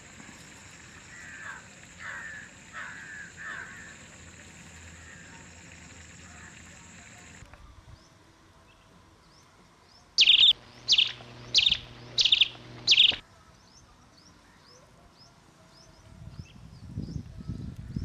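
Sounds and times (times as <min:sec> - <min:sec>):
bird calling sharply: 0:10.2 - 0:13.2
faint small chirps: 0:10.2 - 0:13.2.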